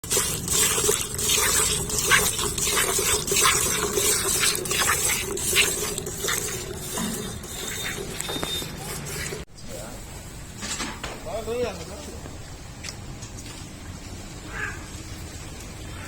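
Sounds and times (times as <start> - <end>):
milk squirting: 0.0 - 9.4.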